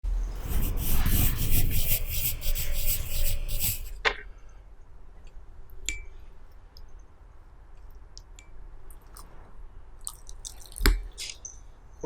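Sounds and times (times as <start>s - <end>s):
dog rubbing fruit with mouth: 0.4s - 4.0s.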